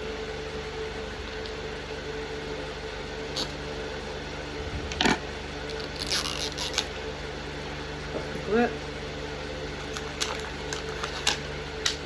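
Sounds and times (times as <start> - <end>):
room hum: 0.0 - 12.0
packaging rustle: 9.8 - 11.4.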